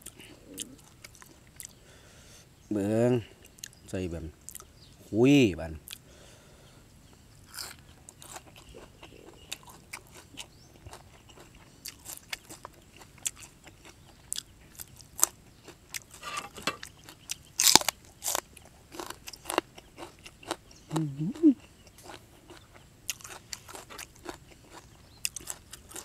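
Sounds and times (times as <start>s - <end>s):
crisp crunchy chewing: 0.0s - 1.8s, 7.4s - 26.0s.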